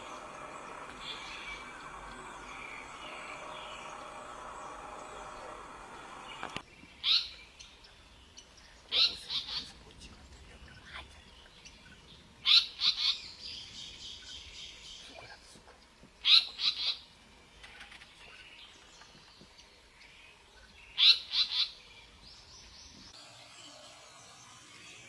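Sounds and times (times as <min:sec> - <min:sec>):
bird chirping calls: 0:00.0 - 0:15.4.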